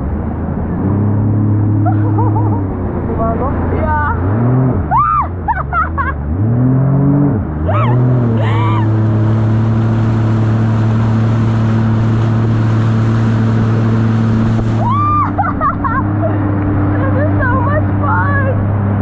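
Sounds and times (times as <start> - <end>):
jet ski engine revving: 0.0 - 19.0
high-pitched cries: 4.9 - 5.8.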